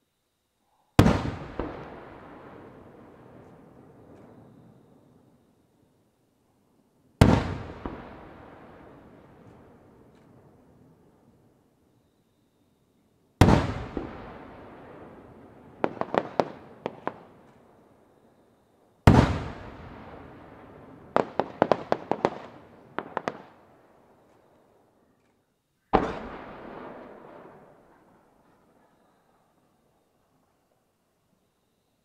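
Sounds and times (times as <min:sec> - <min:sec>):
firework shells booming: 0:01.0 - 0:04.7, 0:07.2 - 0:10.4, 0:13.4 - 0:17.4, 0:19.1 - 0:23.6, 0:25.9 - 0:28.8
firework stars crackling: 0:13.4 - 0:17.9, 0:19.0 - 0:24.9.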